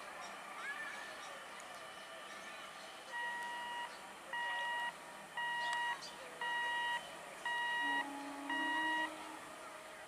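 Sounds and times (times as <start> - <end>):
level crossing buzzer beeping: 3.2 - 9.2.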